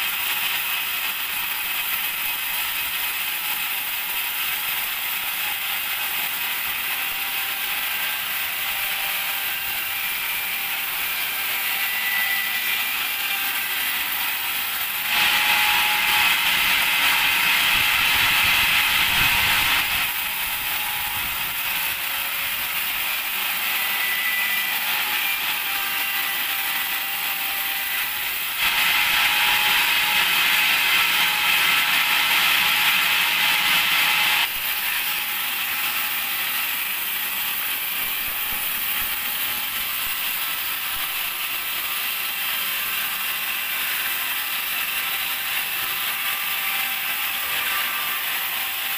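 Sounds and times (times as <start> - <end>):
band saw sawing logs: 0.0 - 48.9.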